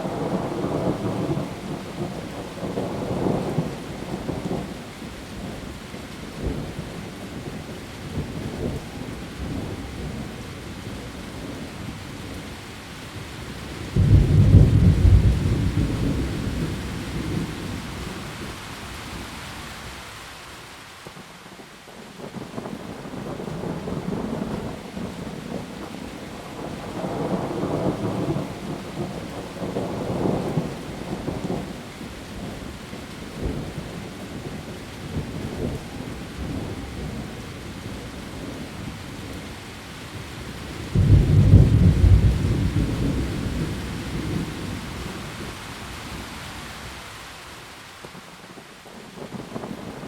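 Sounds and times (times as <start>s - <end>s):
heavy rain on leaves: 0.0s - 50.0s
thunder: 13.9s - 17.8s, 40.9s - 45.2s.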